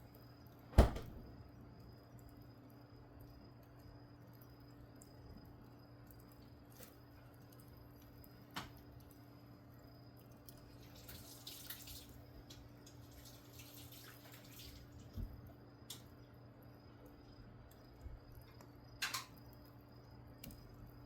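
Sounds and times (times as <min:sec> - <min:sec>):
wood fire crackling: 0:00.0 - 0:21.0.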